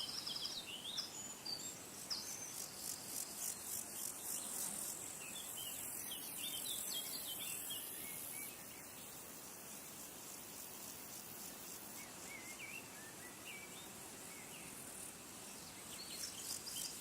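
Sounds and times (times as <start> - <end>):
small birds chirping: 0.0 - 17.0
pulsing insect trill: 14.6 - 17.0.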